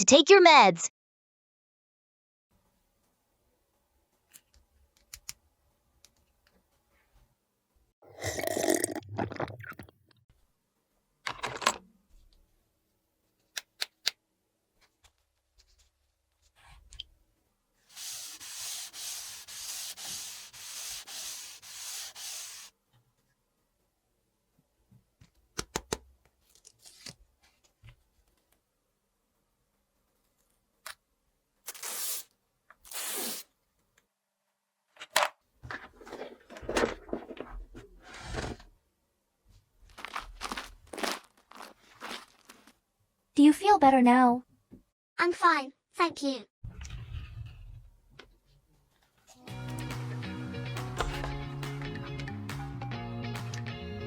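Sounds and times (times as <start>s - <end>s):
packaging rubbing and scraping: 17.9s - 22.7s, 39.9s - 42.8s.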